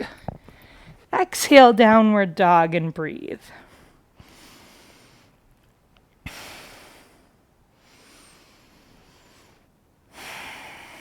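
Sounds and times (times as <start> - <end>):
person breathing through nose: 6.3 - 11.0.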